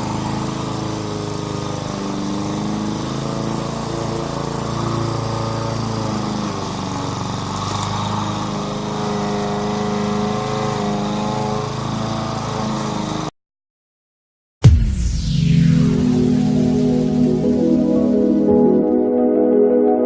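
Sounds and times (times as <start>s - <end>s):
lawn mower engine running: 0.0s - 13.3s, 15.4s - 18.6s
music with loud hit: 14.6s - 18.9s.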